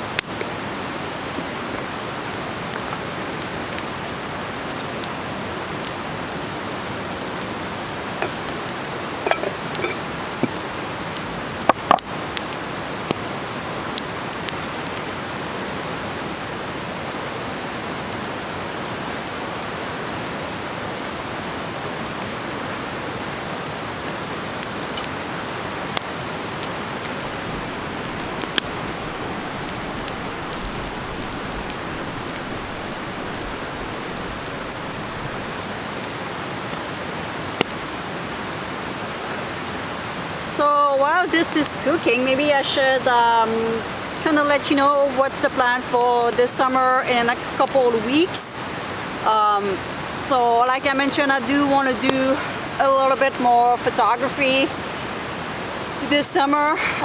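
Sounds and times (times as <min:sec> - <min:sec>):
vegetables sizzling in a pan: 0:05.2 - 0:12.5
pops and clicks: 0:08.1 - 0:12.5, 0:24.6 - 0:25.2, 0:25.9 - 0:36.2.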